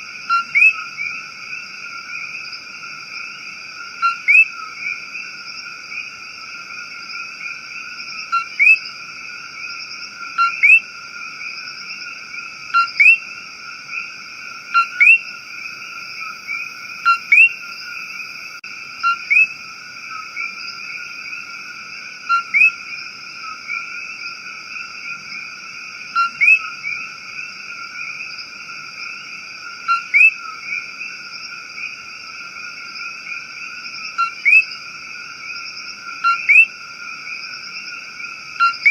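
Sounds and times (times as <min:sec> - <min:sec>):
frogs and insects trilling: 0:00.0 - 0:38.9.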